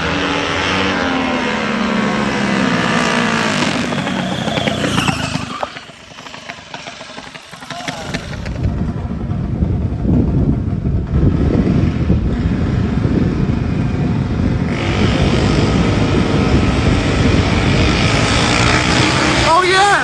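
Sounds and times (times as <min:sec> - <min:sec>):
brighter higher engine sound: 0:00.0 - 0:09.4
minibike engines running rough: 0:00.0 - 0:20.0.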